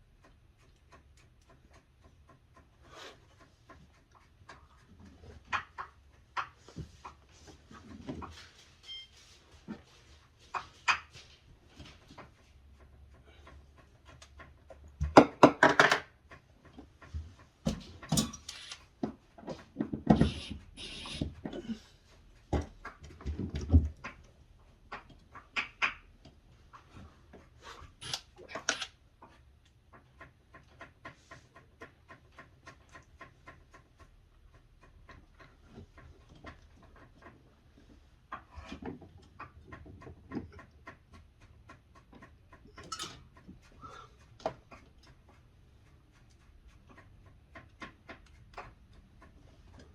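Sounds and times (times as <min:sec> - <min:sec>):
parts clattering and rattling: 0:17.6 - 0:18.6, 0:42.7 - 0:43.4.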